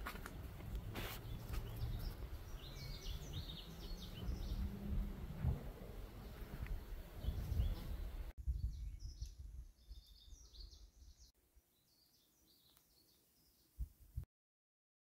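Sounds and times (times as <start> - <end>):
small birds chirping: 0.2 - 5.0, 5.8 - 13.9
low rumble: 1.7 - 9.6.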